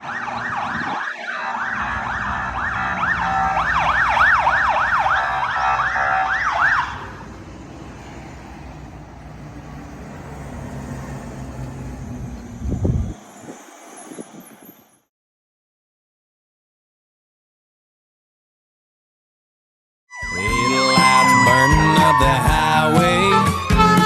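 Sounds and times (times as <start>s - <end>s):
fire engine siren yelping: 0.0s - 14.8s, 20.1s - 24.0s
truck engine running: 1.5s - 13.4s.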